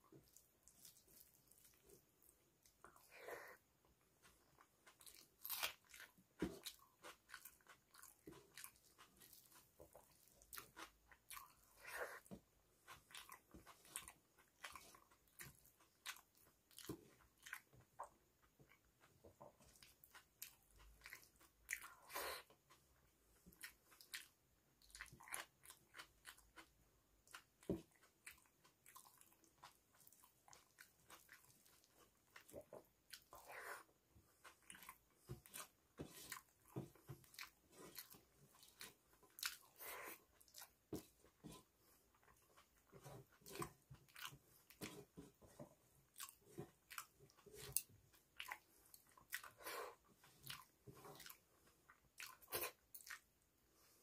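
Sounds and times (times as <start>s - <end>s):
person chewing with mouth smacks: 0.0s - 54.0s.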